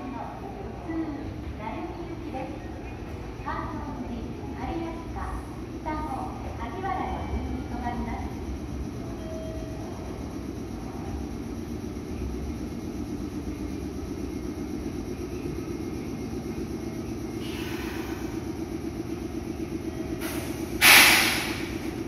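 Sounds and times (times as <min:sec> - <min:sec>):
electric train humming: 0:00.0 - 0:22.0
air brake hiss: 0:17.4 - 0:18.5, 0:20.2 - 0:21.9.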